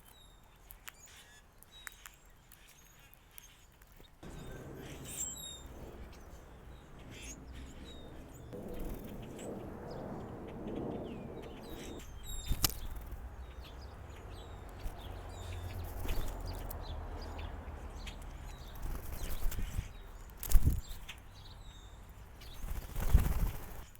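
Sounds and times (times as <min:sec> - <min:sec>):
small birds chirping: 0:00.0 - 0:23.9
low background rumble: 0:04.2 - 0:22.6.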